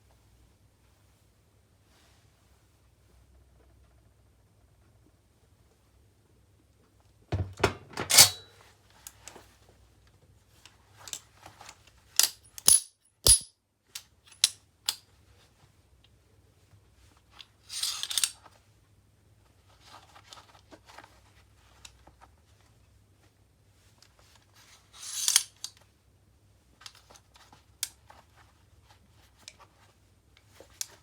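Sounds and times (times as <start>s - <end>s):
metal tongs clanking: 7.9s - 8.5s, 12.6s - 13.5s.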